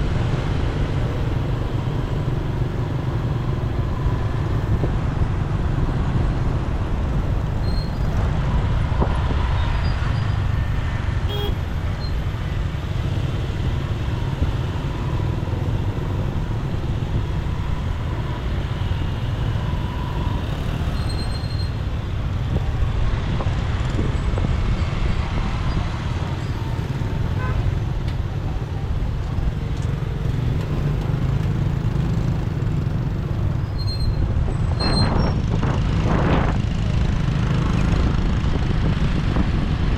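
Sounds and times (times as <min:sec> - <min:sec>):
surrounding traffic noise: 0:00.0 - 0:39.9
horn toots: 0:11.3 - 0:11.6.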